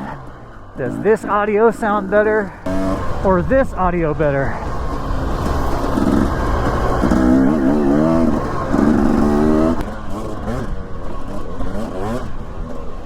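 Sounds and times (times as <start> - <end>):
dirt bike engine revving: 0.0 - 13.0
steady low rumble: 2.6 - 9.9.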